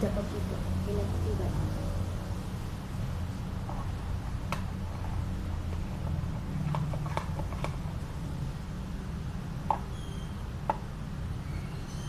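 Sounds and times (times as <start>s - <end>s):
faint high squeaks: 9.9s - 10.4s, 11.4s - 12.0s.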